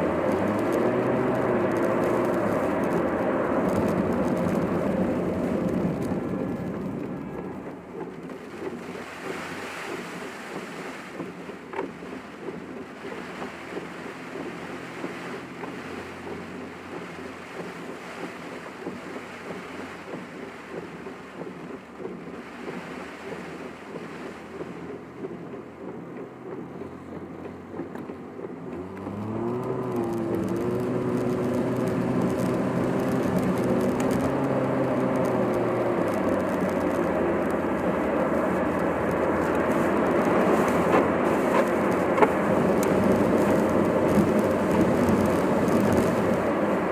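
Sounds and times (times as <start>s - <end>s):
engine drone: 0.0s - 46.9s
road and wind noise: 0.0s - 46.9s.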